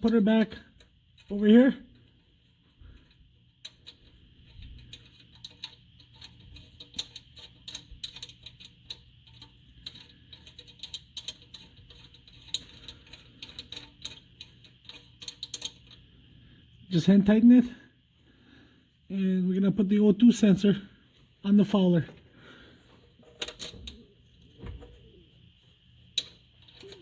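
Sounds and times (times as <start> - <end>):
light metallic clicks and ticks: 0.0 - 16.1.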